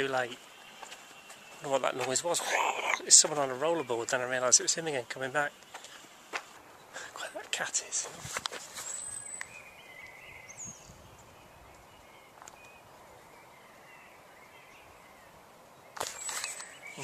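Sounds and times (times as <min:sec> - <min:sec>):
faint bird chirps and whistles: 0:08.7 - 0:17.0.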